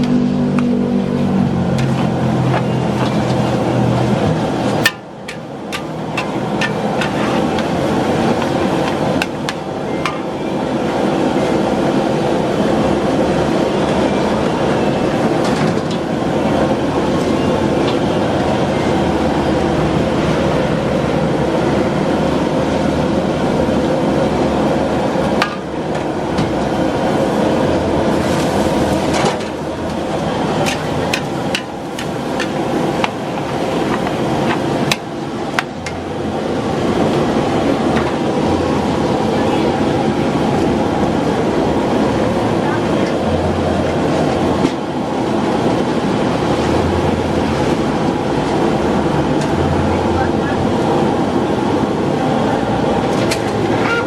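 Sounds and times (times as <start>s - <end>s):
burner and frying rushing: 0.0s - 54.0s
metal spatula scraping a wok: 5.3s - 9.0s.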